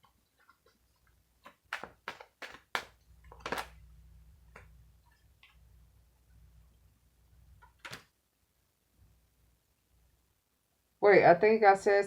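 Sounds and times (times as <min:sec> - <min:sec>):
low steady hum: 0:03.0 - 0:11.3.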